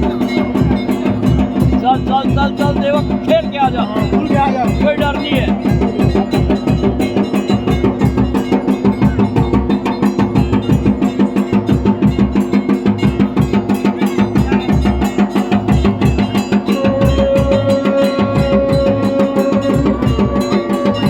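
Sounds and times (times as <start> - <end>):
drums beating fast rhythm: 0.0 - 21.0
droning tone: 16.7 - 21.0
higher held note: 16.7 - 21.0.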